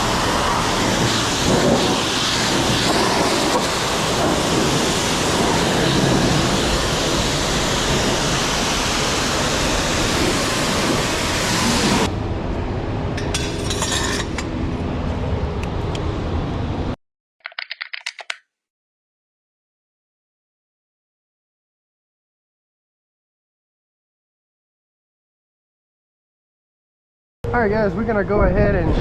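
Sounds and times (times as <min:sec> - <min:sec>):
high-pressure water spray hissing: 0:00.0 - 0:12.1.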